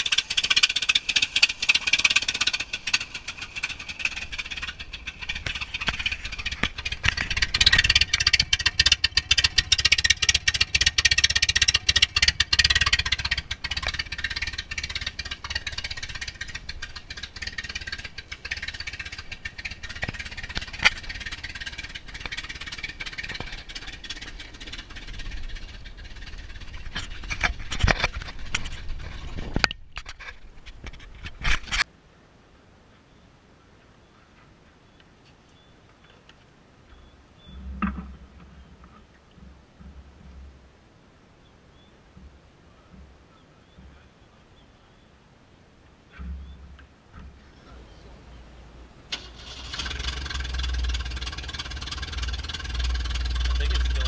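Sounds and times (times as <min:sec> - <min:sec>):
car engine running: 0:00.0 - 0:29.8, 0:49.2 - 0:54.0.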